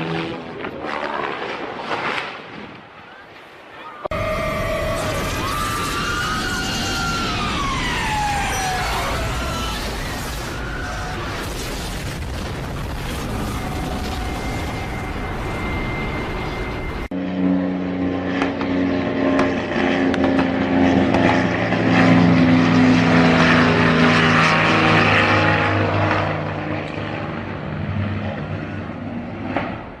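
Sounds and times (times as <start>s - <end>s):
propeller aircraft engine drone: 0.0s - 1.5s, 4.1s - 11.4s, 12.4s - 30.0s
rushing noise: 4.1s - 17.1s.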